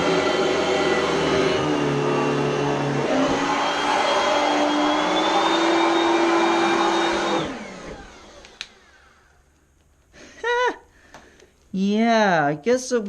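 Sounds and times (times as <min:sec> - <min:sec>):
vacuum cleaner whine winding down: 0:00.0 - 0:09.4.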